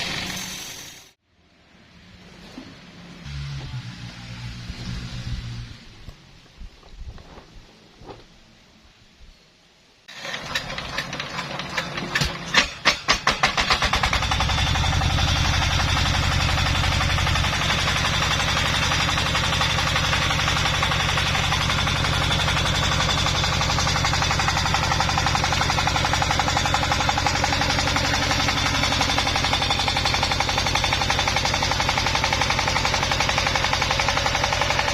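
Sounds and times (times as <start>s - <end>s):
chainsaw engine starting: 0.0s - 1.1s, 10.1s - 34.9s.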